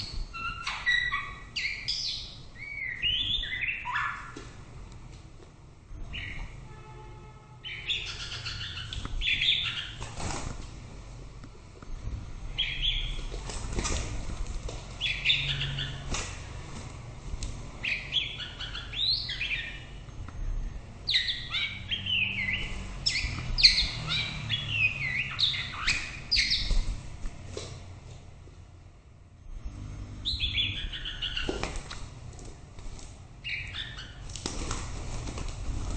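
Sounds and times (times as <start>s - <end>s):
bird singing whistled phrases: 0.4s - 4.4s.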